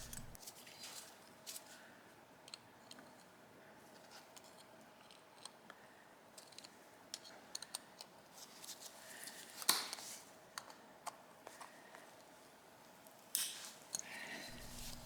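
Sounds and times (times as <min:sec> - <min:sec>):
pliers clicking on screw: 0:00.0 - 0:00.4
screw cracking loose: 0:00.0 - 0:00.4.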